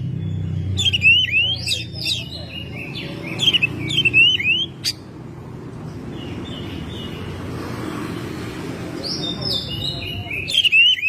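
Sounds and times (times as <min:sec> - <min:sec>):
bird singing whistled notes: 0:00.1 - 0:05.0, 0:09.0 - 0:11.0.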